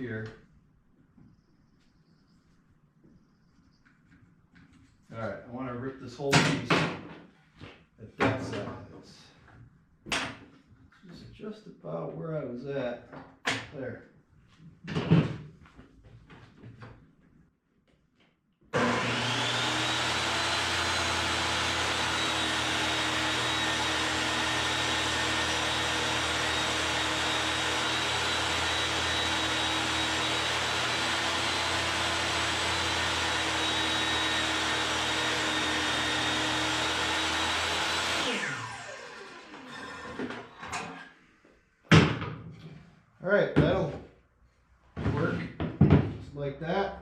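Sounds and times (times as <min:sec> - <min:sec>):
table saw running: 0:18.8 - 0:40.4.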